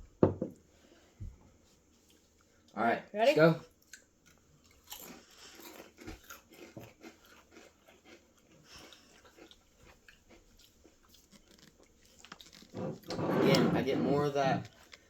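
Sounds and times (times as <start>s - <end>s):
potato chips crunching: 4.0s - 12.8s.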